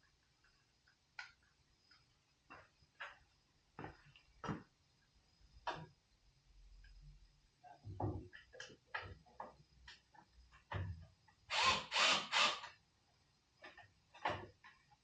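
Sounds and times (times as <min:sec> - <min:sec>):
loud rasping bursts: 0:11.5 - 0:12.7.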